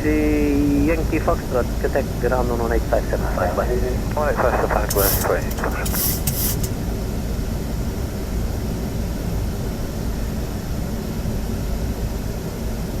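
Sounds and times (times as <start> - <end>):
aircraft engine rumble: 0.0 - 11.0
cockpit airflow: 3.8 - 6.9
short burst of hiss: 4.4 - 6.8.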